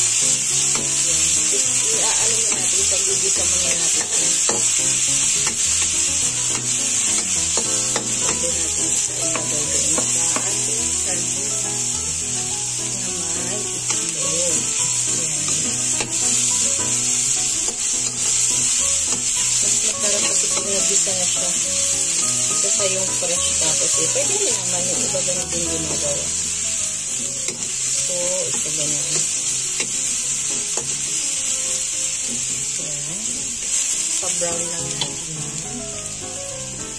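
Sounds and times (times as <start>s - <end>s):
onion sizzling in hot oil: 0.0s - 36.9s
spatula scraping and tapping pan: 0.6s - 10.7s.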